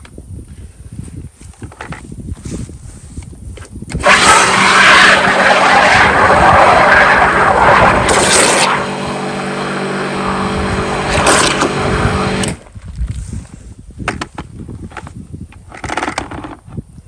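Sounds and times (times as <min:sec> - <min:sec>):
pressure washer spraying: 0:04.0 - 0:12.6.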